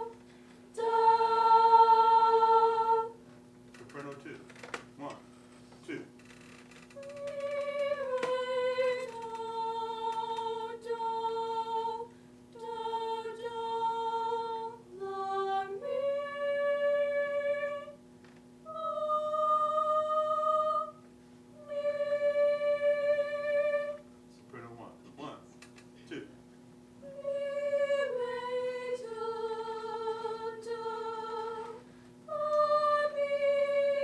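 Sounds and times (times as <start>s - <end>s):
choir singing in unison: 0.0s - 3.2s, 7.0s - 18.0s, 18.7s - 21.0s, 21.6s - 24.0s, 27.0s - 34.0s.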